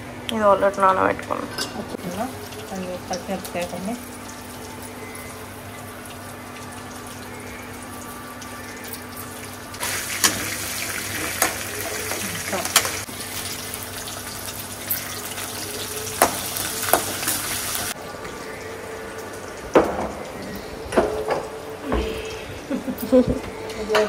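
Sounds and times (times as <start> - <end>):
chillies sizzling in hot oil: 1.7 - 20.9.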